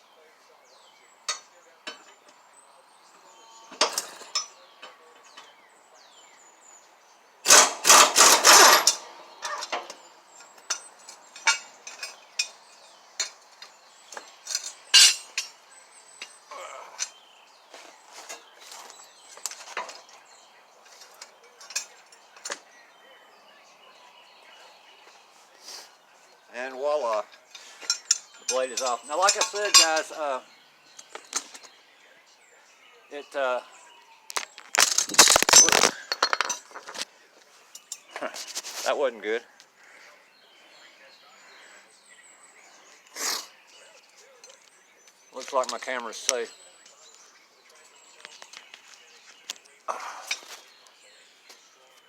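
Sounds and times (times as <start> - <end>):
hand tools clinking on metal: 1.2 - 2.5, 3.6 - 5.6, 7.4 - 17.3, 18.1 - 22.8, 26.9 - 30.4, 34.3 - 38.9, 43.8 - 51.7.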